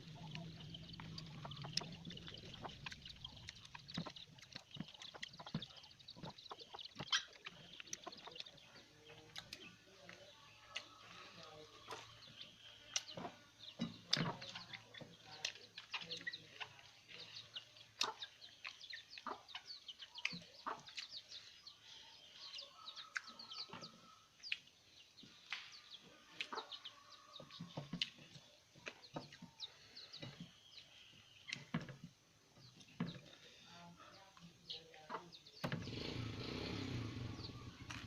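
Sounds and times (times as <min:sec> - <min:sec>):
chewing and lip-smacking: 0:00.0 - 0:13.4, 0:14.0 - 0:21.5, 0:22.4 - 0:23.6, 0:26.3 - 0:26.8, 0:27.5 - 0:29.7, 0:37.8 - 0:38.0
faint bird and chicken calls: 0:00.0 - 0:38.0.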